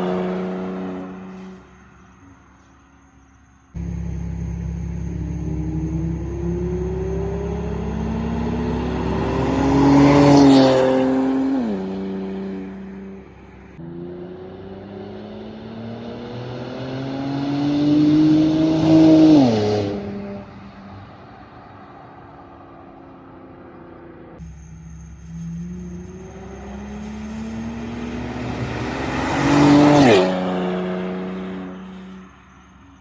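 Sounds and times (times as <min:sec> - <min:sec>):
steady engine note: 0:03.8 - 0:10.3, 0:24.4 - 0:32.3
car exhaust accelerating past: 0:03.8 - 0:20.9, 0:24.4 - 0:32.4.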